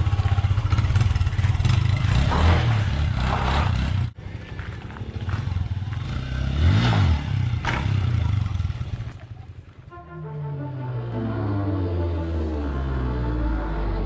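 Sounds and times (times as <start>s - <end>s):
motorcycle engine revving: 0.0s - 4.2s, 4.9s - 9.2s.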